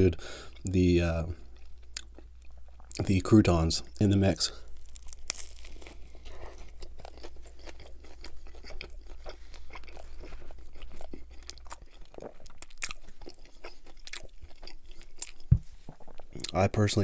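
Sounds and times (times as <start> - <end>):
crunchy chewing: 3.8 - 16.6.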